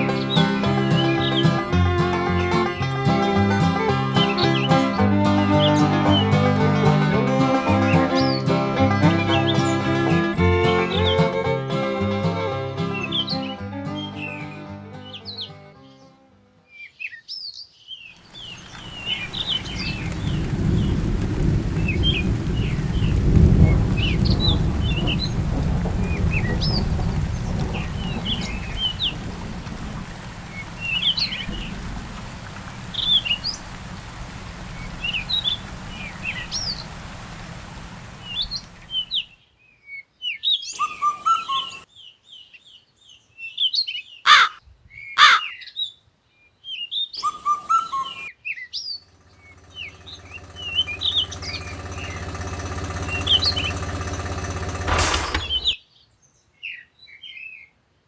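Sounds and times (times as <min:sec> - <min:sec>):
small birds chirping: 0:00.0 - 0:11.4, 0:16.8 - 0:39.6, 0:46.8 - 0:56.9
low rumble: 0:18.3 - 0:39.2, 0:49.2 - 0:55.8
low steady hum: 0:18.3 - 0:39.2, 0:49.1 - 0:55.6.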